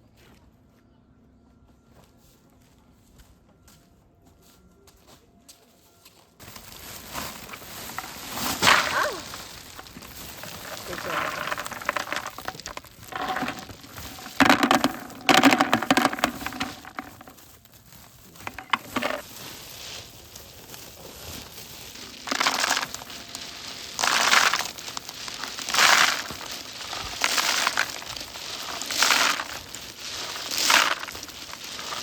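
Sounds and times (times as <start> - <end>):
crunching scrapes: 6.4 - 32.0.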